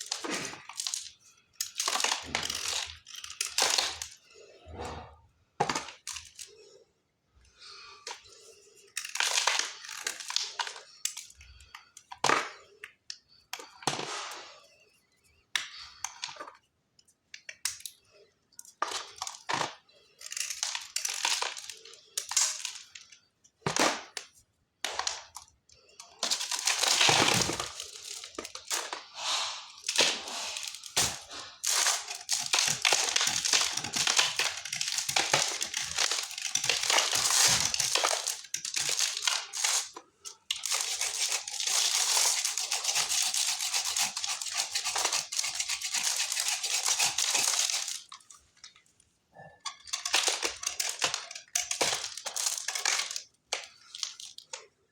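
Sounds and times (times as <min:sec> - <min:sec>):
chalk being crushed and crumbled: 0:26.2 - 0:48.4, 0:49.8 - 0:54.7.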